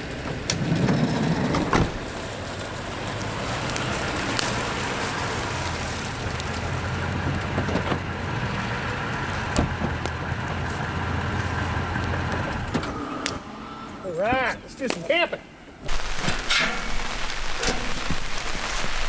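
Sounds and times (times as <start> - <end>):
rain hissing: 0.0 - 14.3, 15.5 - 19.0
vehicle engine drone: 0.0 - 14.3
road noise: 0.0 - 19.0.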